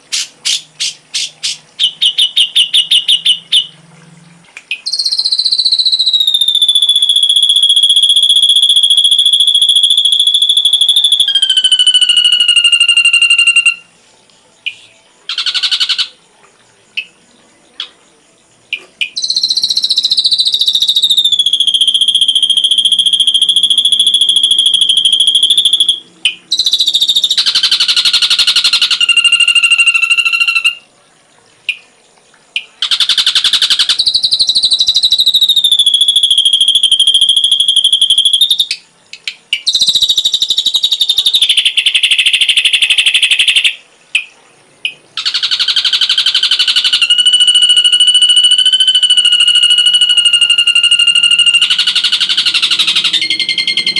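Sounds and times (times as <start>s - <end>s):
bird chirps: 0.0s - 3.8s, 4.6s - 16.2s, 16.9s - 30.9s, 32.5s - 53.9s
bird whistling song: 0.0s - 3.8s, 4.6s - 14.0s, 14.6s - 16.2s, 18.7s - 30.9s, 32.6s - 53.9s
harsh buzzy bird trill: 0.0s - 3.8s, 4.8s - 14.0s, 14.6s - 16.2s, 18.7s - 30.9s, 32.6s - 53.9s.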